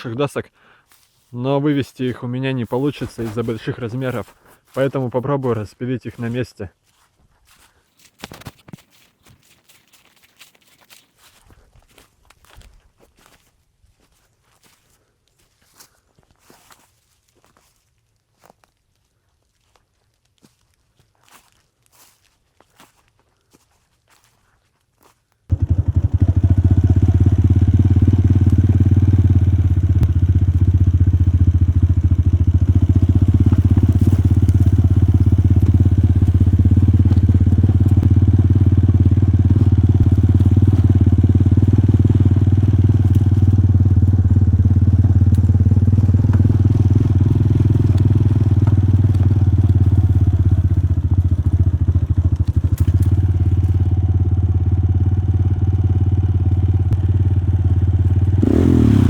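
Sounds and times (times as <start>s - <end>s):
small engine running steadily: 25.5s - 59.0s.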